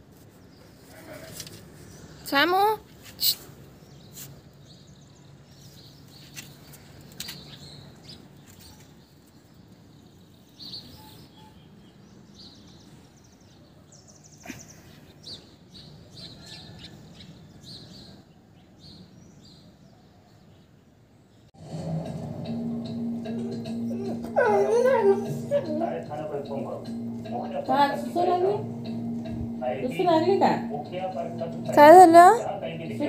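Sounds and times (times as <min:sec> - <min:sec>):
faint background noise: 0:00.0 - 0:33.0
small birds chirping: 0:00.1 - 0:21.5.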